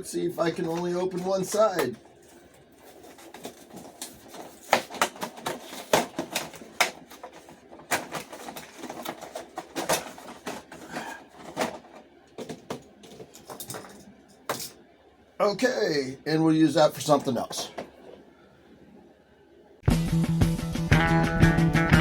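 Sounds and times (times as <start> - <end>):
plastic packaging crackling: 0.3 - 13.2.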